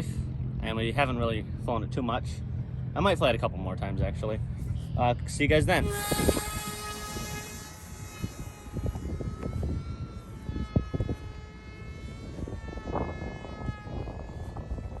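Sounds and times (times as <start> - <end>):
low rumbling noise: 0.0 - 15.0
rc plane motor whine: 4.5 - 15.0.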